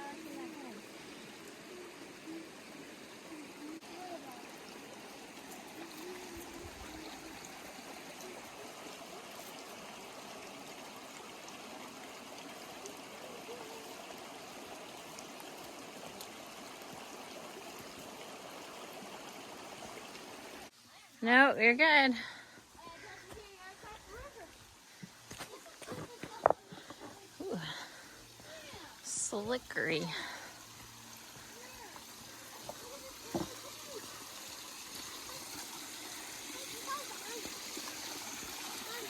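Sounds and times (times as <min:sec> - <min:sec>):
stream running over rocks: 0:00.0 - 0:39.0.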